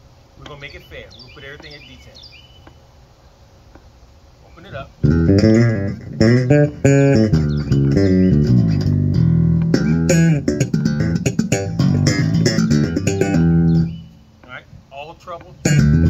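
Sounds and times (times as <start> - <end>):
electric bass plucked notes: 5.0 - 14.2, 15.5 - 16.0.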